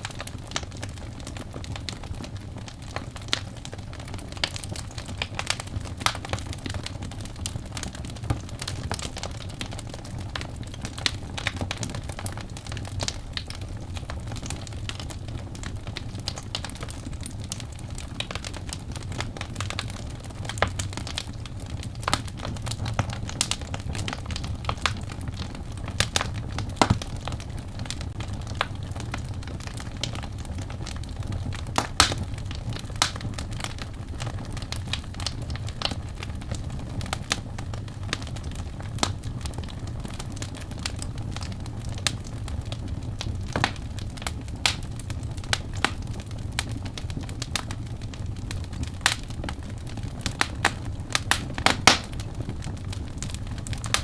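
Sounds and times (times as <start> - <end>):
low rumble of flame: 0.0 - 54.0
wood fire crackling: 0.0 - 54.0.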